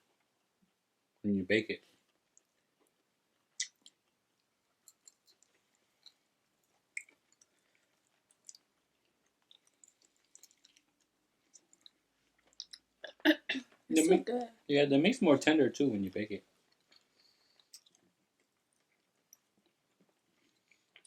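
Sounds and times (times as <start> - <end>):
food being chewed: 2.0 - 12.9, 16.6 - 21.0
mouth clicks while chewing: 3.5 - 4.2, 4.8 - 6.2, 6.9 - 12.9, 16.7 - 19.8.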